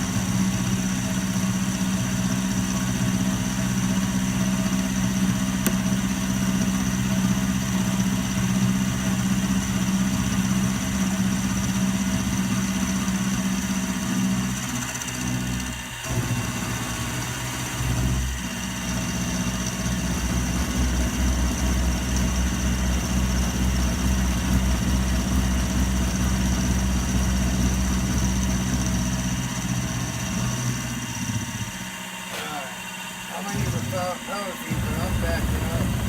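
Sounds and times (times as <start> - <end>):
milling machine motor hum: 0.0 - 36.0
thin high whine: 31.5 - 36.0.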